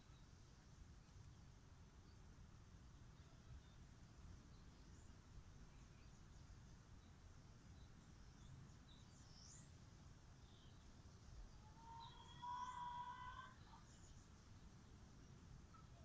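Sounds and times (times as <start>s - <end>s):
distant bird chirps: 10.4s - 16.0s.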